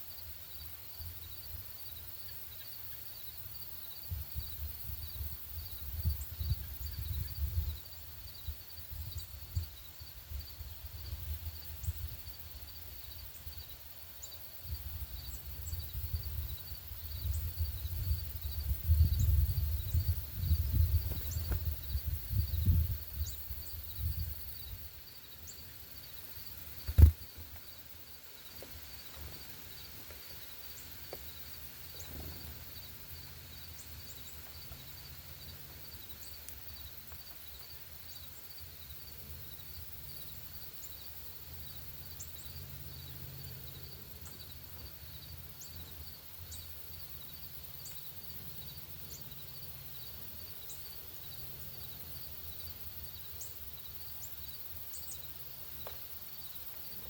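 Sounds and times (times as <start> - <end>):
sharp knock: 26.9 - 27.2.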